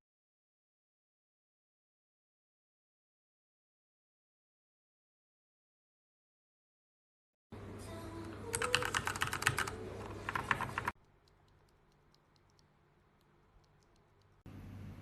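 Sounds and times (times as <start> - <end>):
mechanical keyboard typing: 8.5 - 14.4.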